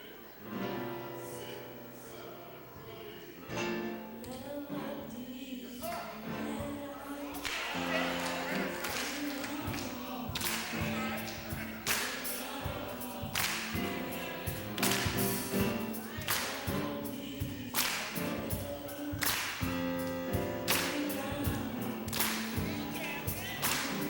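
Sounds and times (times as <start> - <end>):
gospel singing: 0.0 - 24.0.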